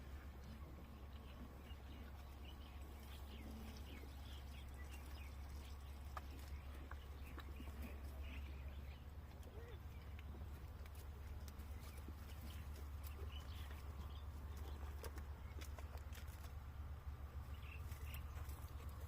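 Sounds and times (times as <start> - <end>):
small birds chirping: 0.0 - 19.0
steady low hum: 0.0 - 19.0.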